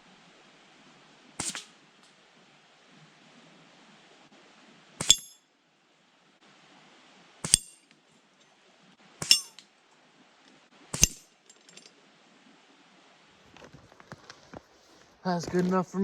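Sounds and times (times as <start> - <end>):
pellet gun shots: 1.4 - 1.7
pellets pinging on metal targets: 5.0 - 5.4, 7.4 - 7.8, 9.2 - 9.6, 11.0 - 11.2.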